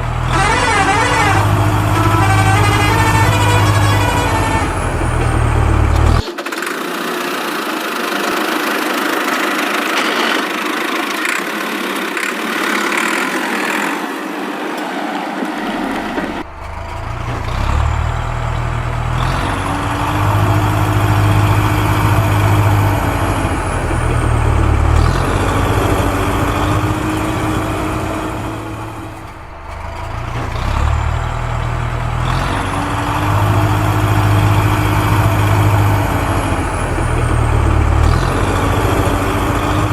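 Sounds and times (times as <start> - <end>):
heavy vehicle engine cycling: 0.0 - 13.9, 14.6 - 39.9.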